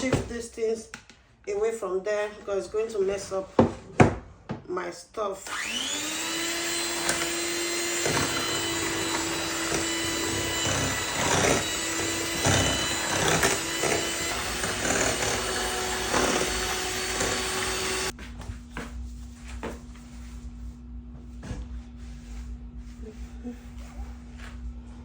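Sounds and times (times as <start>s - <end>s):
electric mixer motor running: 5.4s - 18.1s.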